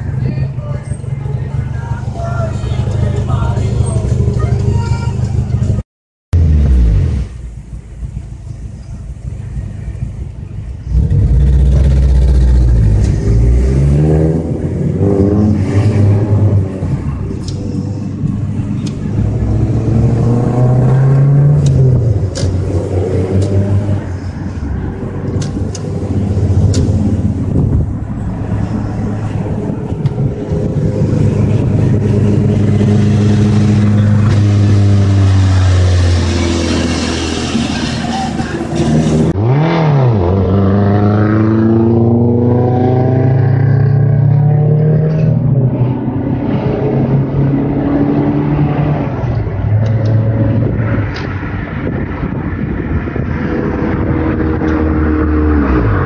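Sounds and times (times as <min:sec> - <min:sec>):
car engine accelerating: 0:06.4 - 0:56.0.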